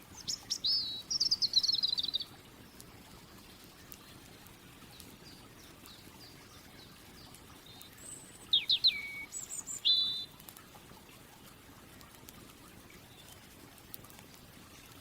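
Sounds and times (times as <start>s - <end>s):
songbird singing: 0.0s - 2.8s, 4.8s - 10.4s
faint background hiss: 0.0s - 15.0s
soft clicks: 10.4s - 10.7s, 12.0s - 12.6s, 13.2s - 15.0s.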